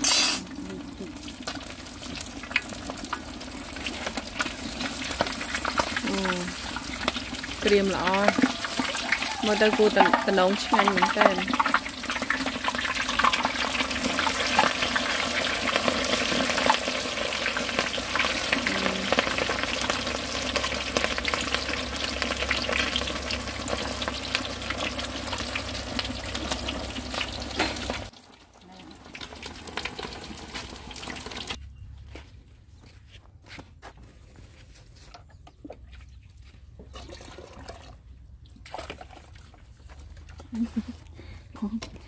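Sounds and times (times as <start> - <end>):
food sizzling in hot oil: 0.0 - 31.6.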